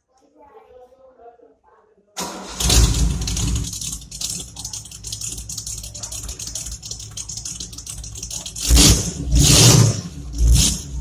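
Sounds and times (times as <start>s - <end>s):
car engine starting and idling: 2.2s - 11.0s.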